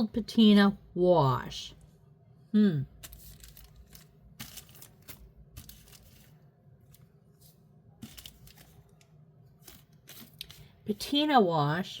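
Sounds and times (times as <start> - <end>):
plastic bags rustling: 3.0 - 10.8.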